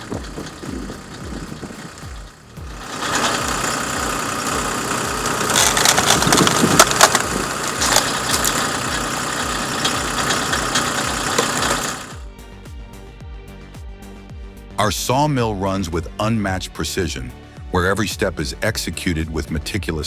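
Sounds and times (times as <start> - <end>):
wood cracking and splintering: 0.0 - 12.2
wood processing machine running: 0.0 - 12.2.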